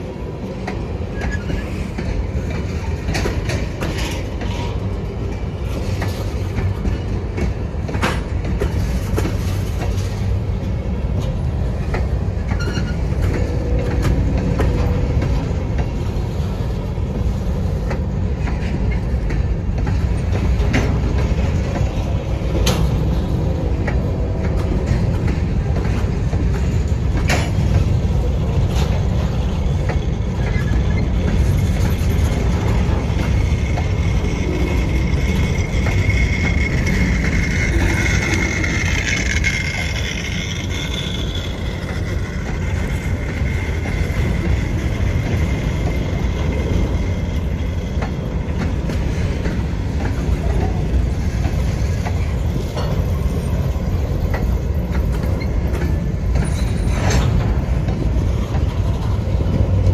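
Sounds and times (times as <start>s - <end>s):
freight train rumble and clatter: 0.0s - 59.9s
high wheel squeal: 12.5s - 13.2s, 32.9s - 42.2s, 56.4s - 57.3s.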